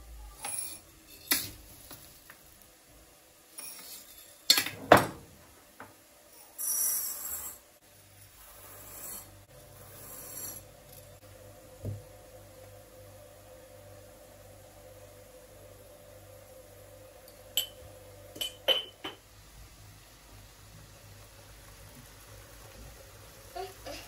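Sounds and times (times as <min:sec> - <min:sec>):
kitchenware knocking and clicking: 0:04.5 - 0:05.9, 0:18.4 - 0:19.2
scraping rub: 0:08.4 - 0:10.7.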